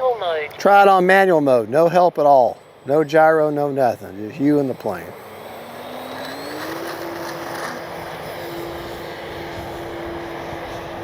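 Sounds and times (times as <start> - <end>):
electric motor and propeller whining: 1.2 - 11.0
wind noise: 6.3 - 11.0.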